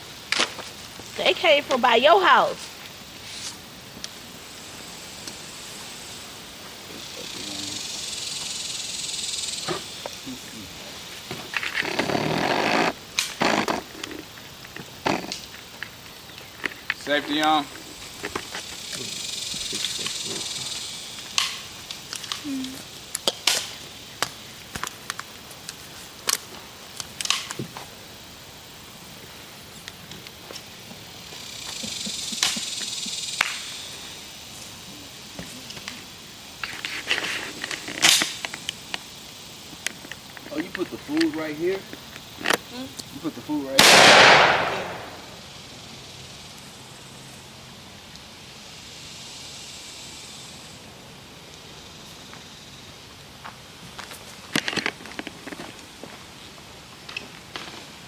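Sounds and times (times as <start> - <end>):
soft outdoor hiss: 0.0 - 58.0.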